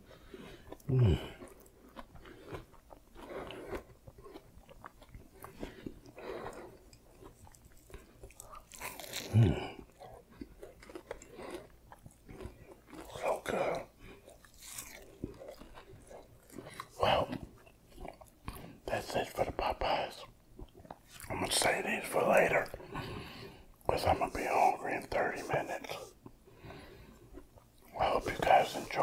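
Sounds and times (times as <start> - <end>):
wet chewing with crunches: 0.0 - 24.4, 25.8 - 29.0
person humming mmm: 0.9 - 1.5, 9.2 - 9.8.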